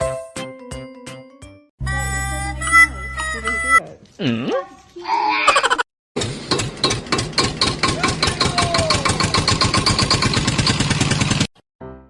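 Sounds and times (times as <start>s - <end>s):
small engine chugging: 6.2s - 11.5s.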